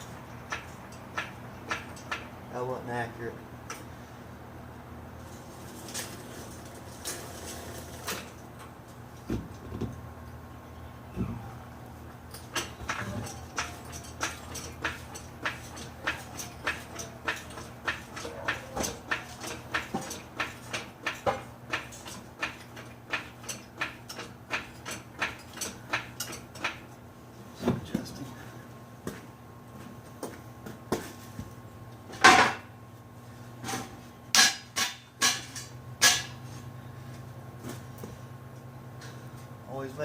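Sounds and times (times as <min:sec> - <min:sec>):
metal clanks and knocks: 0:00.4 - 0:02.3, 0:12.3 - 0:26.9, 0:33.6 - 0:36.4.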